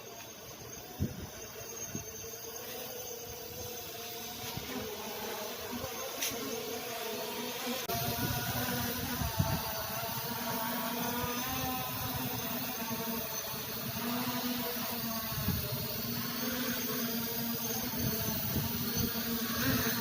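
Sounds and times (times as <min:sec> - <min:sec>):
drone propellers buzzing: 0:00.0 - 0:20.0
wind buffeting microphone: 0:07.9 - 0:10.4, 0:15.2 - 0:16.2, 0:17.8 - 0:20.0.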